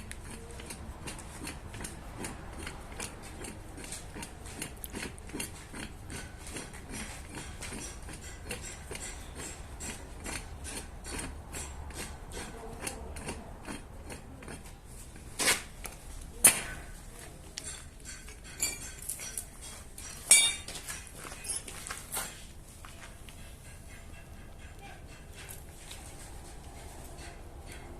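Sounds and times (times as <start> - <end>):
light metallic taps and clinks: 17.5 - 27.9.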